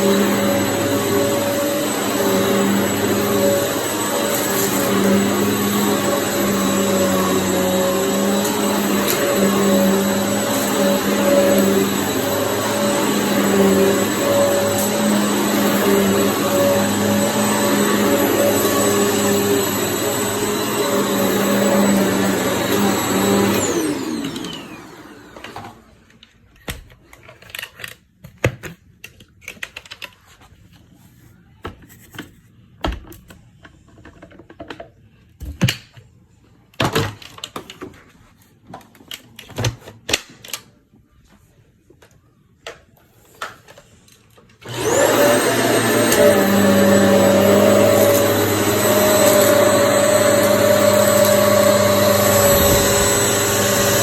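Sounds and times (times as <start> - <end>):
vacuum cleaner running: 0.0 - 26.1, 44.6 - 54.0
motor spinning up whine: 44.7 - 54.0
motor winding down whine: 44.7 - 54.0.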